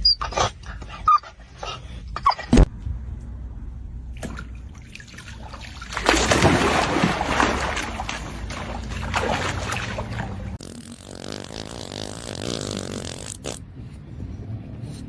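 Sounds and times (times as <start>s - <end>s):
low steady hum: 2.7s - 10.6s
water splashing and sloshing: 4.1s - 10.6s.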